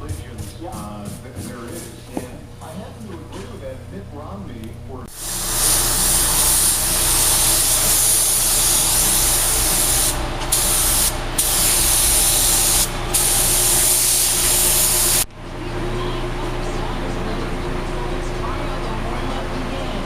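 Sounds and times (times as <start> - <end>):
paint spray gun hissing: 5.1 - 15.2.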